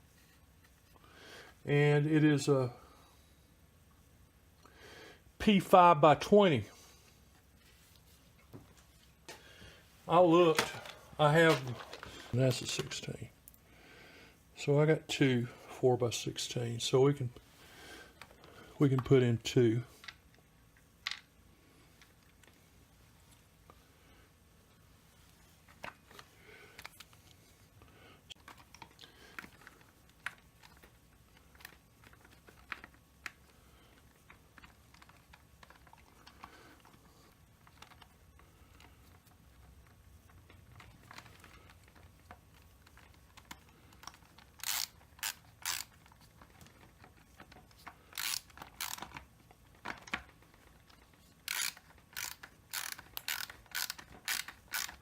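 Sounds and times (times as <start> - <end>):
small parts clicking and tapping: 20.0 - 21.3, 28.3 - 55.0
hand ratchet clicking: 43.4 - 46.0, 48.1 - 49.2, 51.4 - 55.0.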